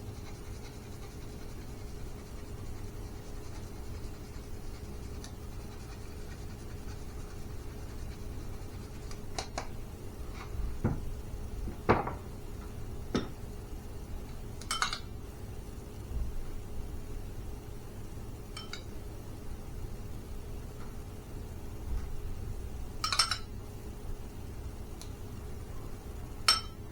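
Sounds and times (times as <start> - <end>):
faint steady hum: 0.0 - 26.9
dishes and utensils clinking: 14.6 - 15.1, 18.6 - 18.9, 23.0 - 23.5, 26.5 - 26.8.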